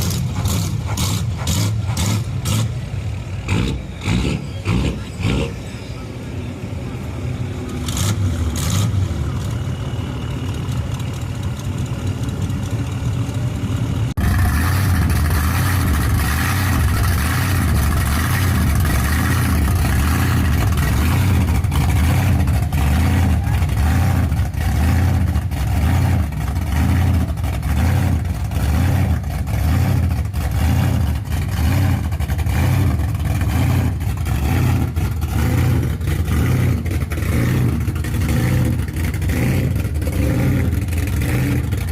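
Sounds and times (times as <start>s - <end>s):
car engines revving: 0.0s - 41.9s
cars passing by: 0.0s - 41.9s.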